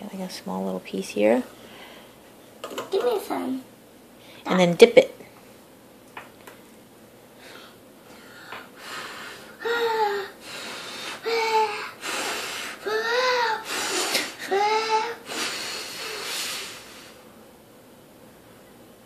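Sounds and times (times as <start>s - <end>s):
child huffing breathy puffs: 7.5s - 17.2s
child whimpering: 9.6s - 10.5s, 11.2s - 16.3s.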